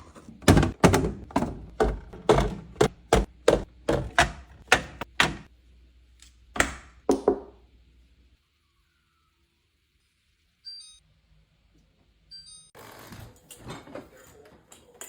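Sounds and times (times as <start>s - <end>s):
hard knocks and thunks: 0.4s - 5.5s.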